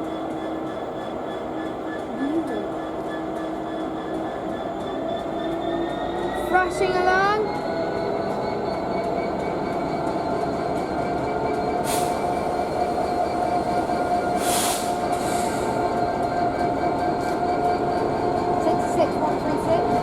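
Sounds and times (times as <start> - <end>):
freight train rumbling: 0.0 - 20.0
short air hisses: 14.4 - 15.5.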